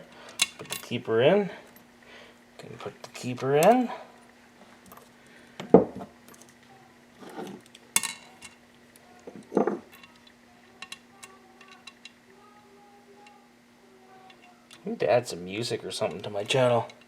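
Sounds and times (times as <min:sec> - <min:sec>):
faint steady hum: 0:00.0 - 0:17.0
metal parts clinking: 0:07.2 - 0:08.6, 0:09.4 - 0:10.2.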